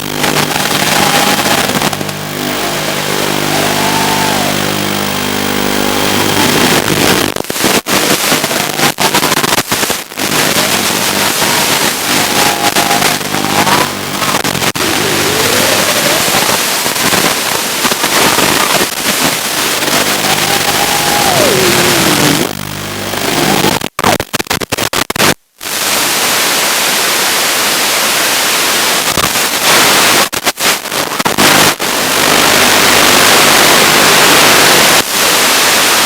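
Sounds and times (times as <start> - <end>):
thin whine rising and falling: 0.0 - 23.7
static hiss with crackling: 0.0 - 36.0.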